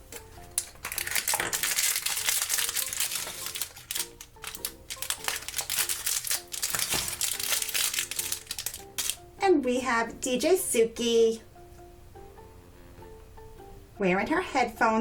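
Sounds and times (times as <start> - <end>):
soft background music: 0.0 - 15.0
plastic wrapper crinkling and tearing: 0.1 - 9.2.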